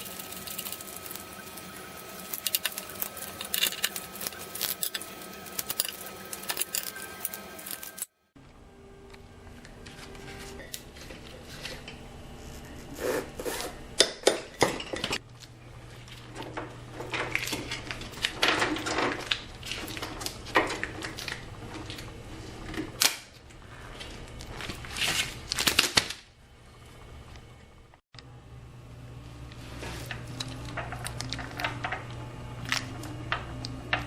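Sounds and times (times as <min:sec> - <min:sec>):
low steady hum: 0:00.0 - 0:25.6, 0:26.2 - 0:34.0
metal tools clinking and scraping: 0:02.2 - 0:08.1.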